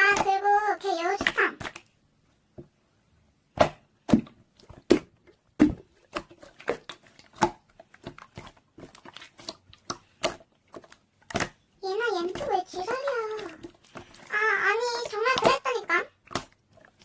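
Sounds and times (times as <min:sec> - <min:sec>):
slime clicking and popping: 0:09.4 - 0:11.7.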